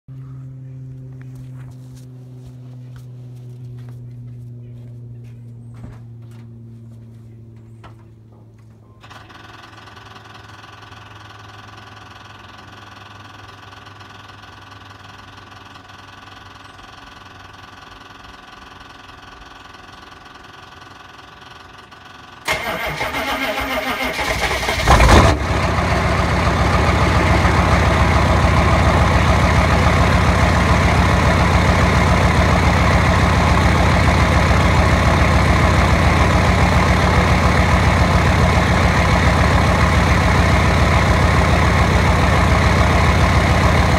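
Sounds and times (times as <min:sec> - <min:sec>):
diesel engine starting and idling: 0:09.0 - 0:43.9.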